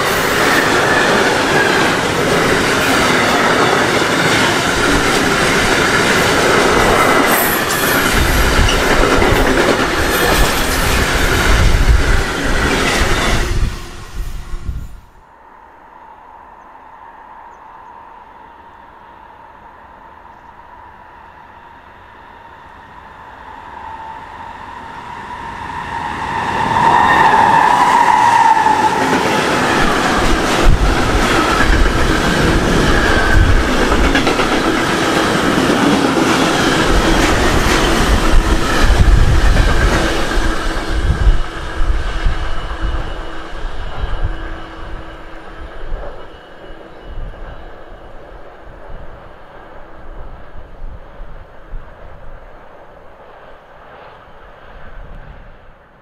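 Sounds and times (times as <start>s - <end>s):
train cars rumbling past: 0.0s - 56.0s
wheels clacking over rail joints: 28.4s - 40.9s.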